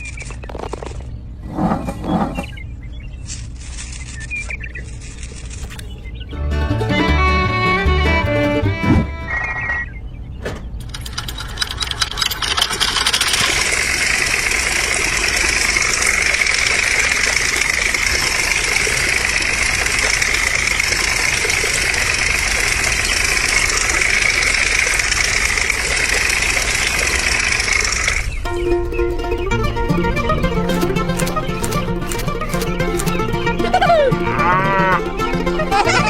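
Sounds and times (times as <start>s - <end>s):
constant high whine: 8.7s - 34.4s
tractor motor starting: 10.7s - 36.0s.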